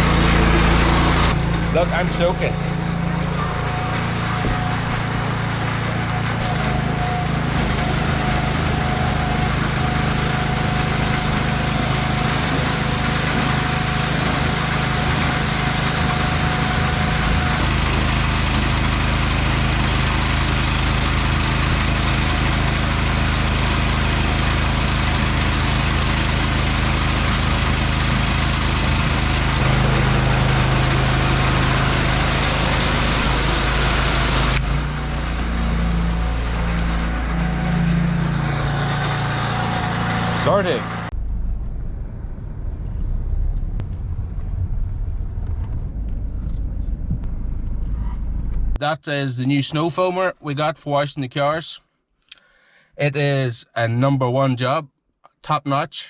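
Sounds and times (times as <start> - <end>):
pressure washer spraying water: 6.4 - 41.0.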